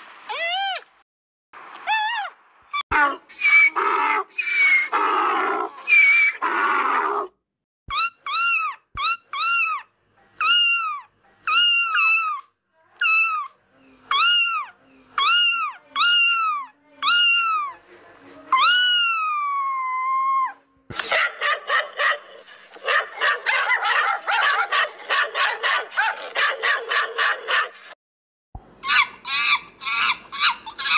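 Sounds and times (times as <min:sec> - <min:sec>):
rough animal cries: 0:01.9 - 0:07.3, 0:07.9 - 0:17.8, 0:18.5 - 0:20.6, 0:28.8 - 0:30.9.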